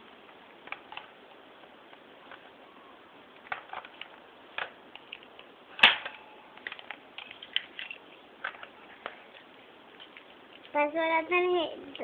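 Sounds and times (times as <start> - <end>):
loud plastic clack: 3.4 - 9.2.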